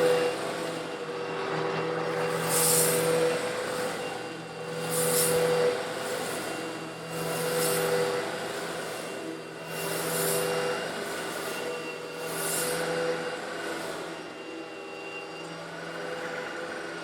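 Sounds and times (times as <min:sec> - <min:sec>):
vacuum cleaner motor running: 0:00.0 - 0:17.0
vacuum sucking up rattling granules: 0:02.2 - 0:11.6.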